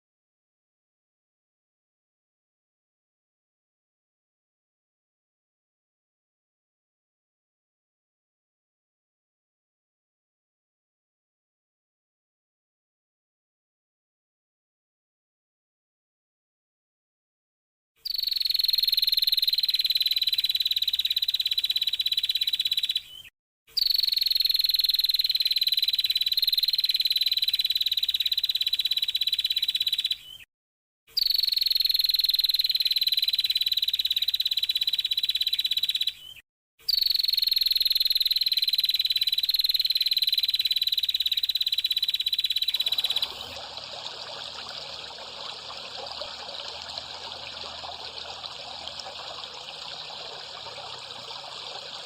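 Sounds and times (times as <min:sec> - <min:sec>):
high trilling animal call: 0:42.6 - 0:43.8.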